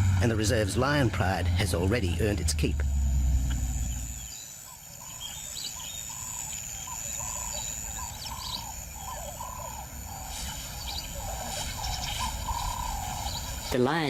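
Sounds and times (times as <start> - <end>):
insects buzzing: 0.0 - 14.0
birds calling repeated notes: 0.4 - 14.0
high bird chirps: 3.7 - 13.8.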